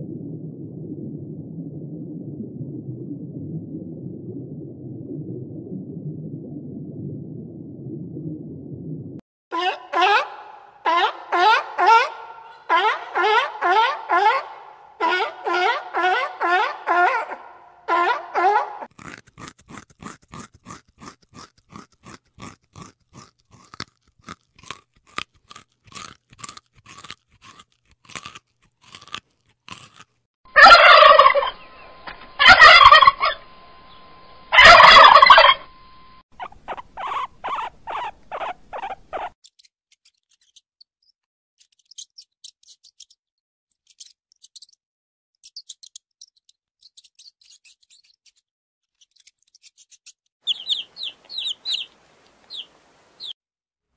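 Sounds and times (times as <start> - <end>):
turkey gobbling: 9.5 - 18.9, 30.5 - 31.8, 32.4 - 33.4, 34.5 - 35.7, 50.5 - 53.3.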